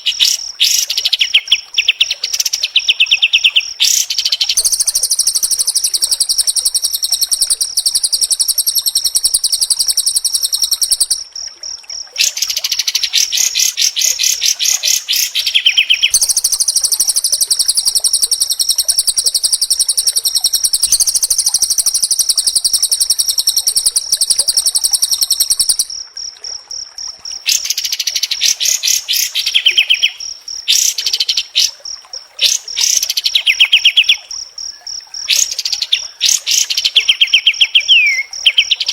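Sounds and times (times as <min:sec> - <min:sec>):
bird singing rapid high notes: 0:03.0 - 0:11.2, 0:13.2 - 0:25.9.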